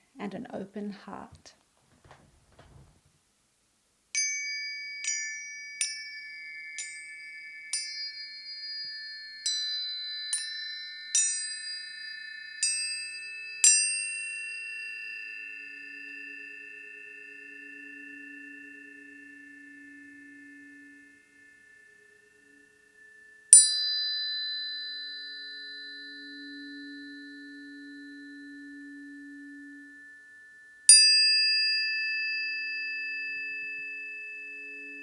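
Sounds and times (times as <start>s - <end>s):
tuning forks ringing: 4.2s - 35.0s.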